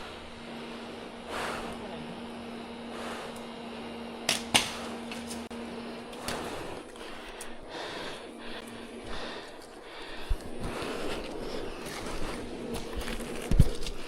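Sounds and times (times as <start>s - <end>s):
honeybees humming: 0.0s - 14.0s
sharp cracks: 4.3s - 5.4s.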